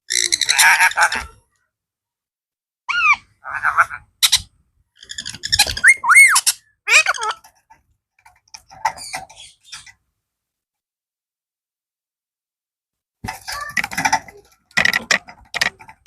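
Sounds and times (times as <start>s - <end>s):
parrot squawking and whistling: 5.5s - 7.2s.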